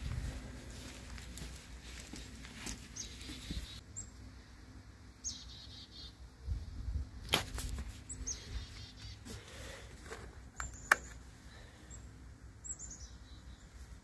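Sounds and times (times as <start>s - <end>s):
bird calling with warble: 5.2s - 6.2s, 8.0s - 9.4s.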